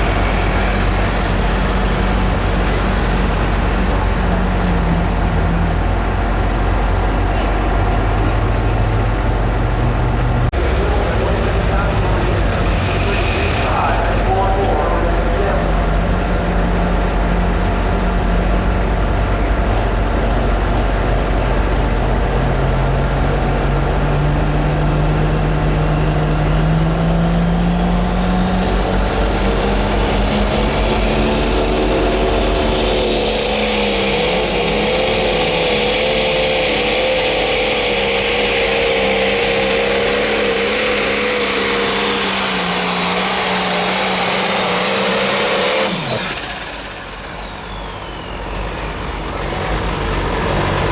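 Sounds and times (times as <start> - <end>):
pulling tractor engine at full throttle: 0.0 - 50.9
turbo whine and hiss: 28.6 - 49.4.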